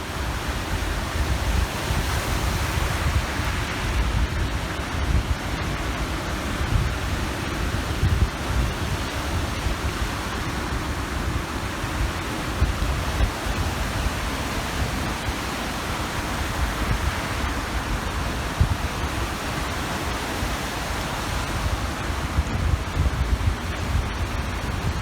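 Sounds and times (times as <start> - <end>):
waves washing onto shore: 0.0 - 25.0
wind buffeting microphone: 0.0 - 25.0.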